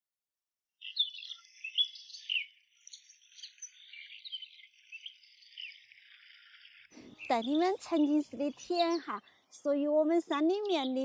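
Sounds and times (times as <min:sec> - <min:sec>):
small birds chirping: 0:00.8 - 0:11.0.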